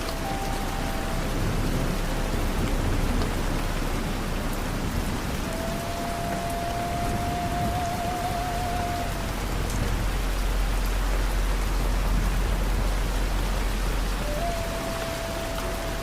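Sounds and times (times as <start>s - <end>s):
wavering high tone: 0.0s - 2.5s, 14.2s - 16.0s
deep low rumble: 0.0s - 16.0s
rain falling on a surface: 0.0s - 16.0s.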